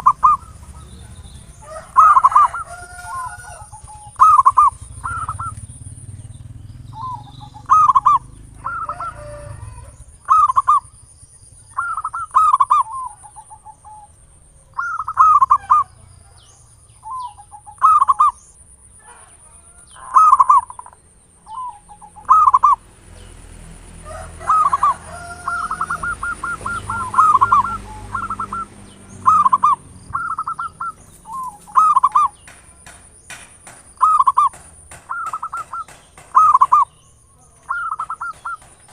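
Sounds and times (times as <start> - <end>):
staccato bird notes: 0.0 - 9.1, 24.4 - 38.9
dove cooing: 0.0 - 11.0, 11.7 - 22.9, 23.8 - 38.9.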